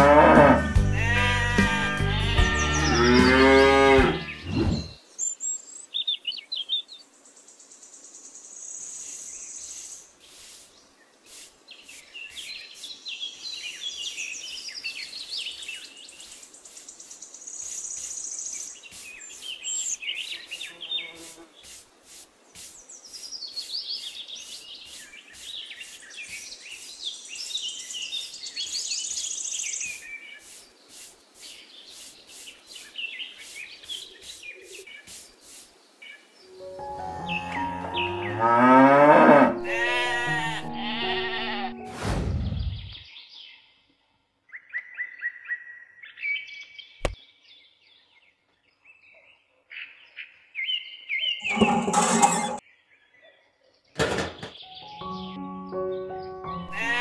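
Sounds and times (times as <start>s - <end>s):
birds chirping and singing: 0.0s - 21.8s, 22.5s - 41.8s, 44.6s - 57.0s
high insect buzz: 8.8s - 13.0s, 15.8s - 35.8s, 39.5s - 41.9s, 56.7s - 57.0s.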